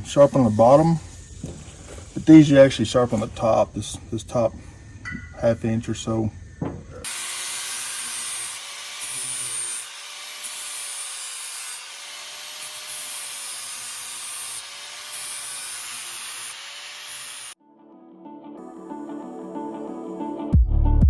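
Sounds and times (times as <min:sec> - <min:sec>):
grinding wheel on metal: 0:07.0 - 0:17.6.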